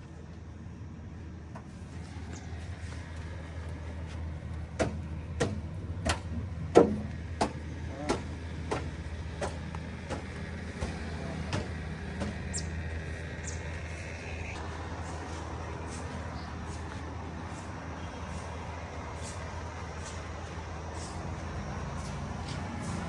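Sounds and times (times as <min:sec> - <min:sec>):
tractor engine running: 0:00.0 - 0:23.0
sharp engine knocks: 0:04.6 - 0:12.9.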